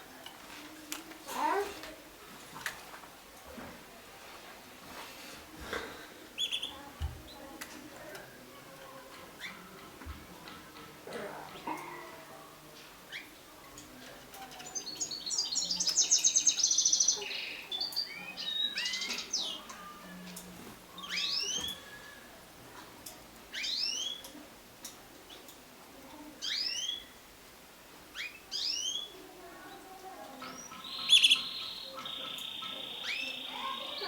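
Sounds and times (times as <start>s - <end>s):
canaries singing and calling: 6.4s - 11.9s, 12.8s - 22.1s, 23.4s - 24.4s, 26.3s - 27.2s, 28.1s - 34.0s.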